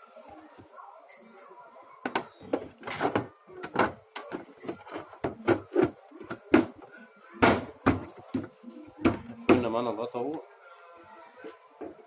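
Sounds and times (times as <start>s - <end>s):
plastic knocks and clacks: 2.0s - 9.8s.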